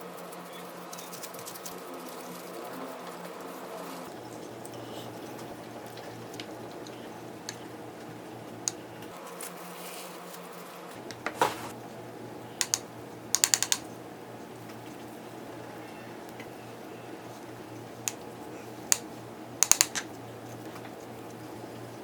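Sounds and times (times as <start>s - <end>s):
steady low hum: 4.0s - 9.2s, 10.9s - 22.0s
utensils clicking on dishes: 12.6s - 13.9s, 18.9s - 20.1s.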